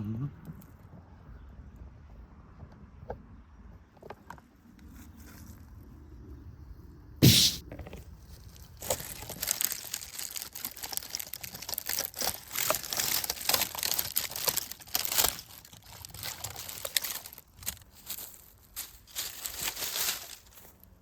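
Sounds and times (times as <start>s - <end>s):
dry leaves and twigs crackling: 8.0s - 21.0s.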